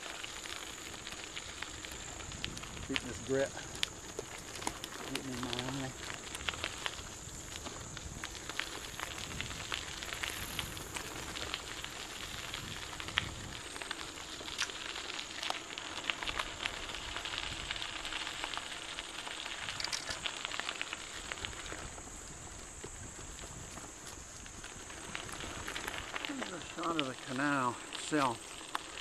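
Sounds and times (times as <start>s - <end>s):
bicycle tyres crunching gravel: 0.0s - 29.0s.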